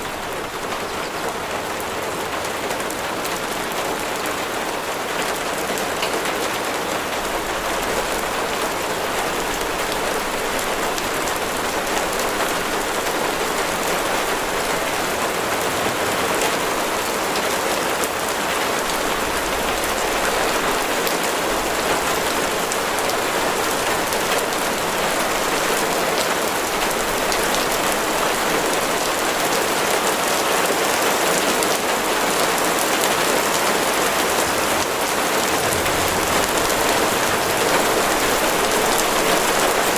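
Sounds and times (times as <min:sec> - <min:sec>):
rain on a hard surface: 0:00.0 - 0:39.9.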